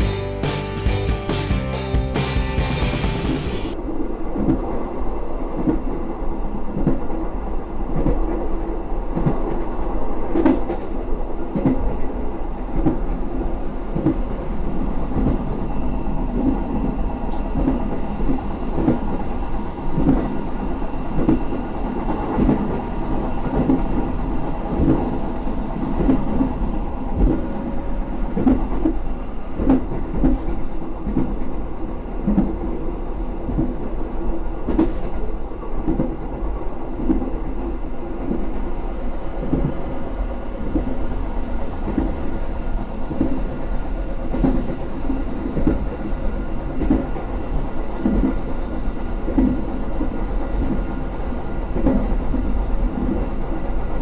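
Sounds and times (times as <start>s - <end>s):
train rumbling on track: 0.0s - 54.0s
hiss: 17.3s - 26.7s, 41.8s - 48.4s, 50.9s - 52.6s.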